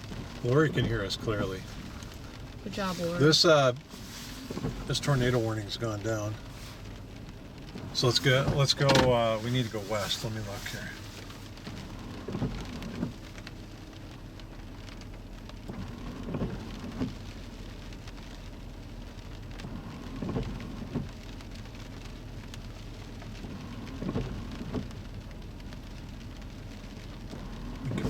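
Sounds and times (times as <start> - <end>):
rain falling on a car: 0.0 - 28.0
windshield wipers knocking: 0.1 - 13.3, 15.6 - 17.2, 19.6 - 21.4, 23.8 - 25.6.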